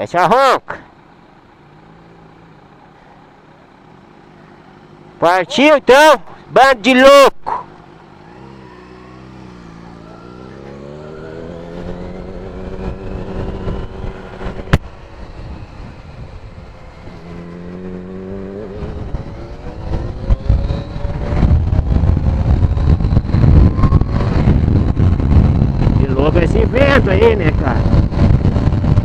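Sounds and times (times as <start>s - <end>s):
motorcycle accelerating: 0.0s - 29.0s
wind rumble on microphone: 11.8s - 29.0s.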